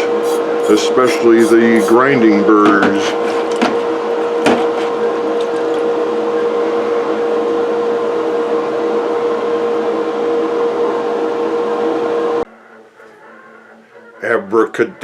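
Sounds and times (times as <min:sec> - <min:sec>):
electric motor humming: 0:00.0 - 0:02.1.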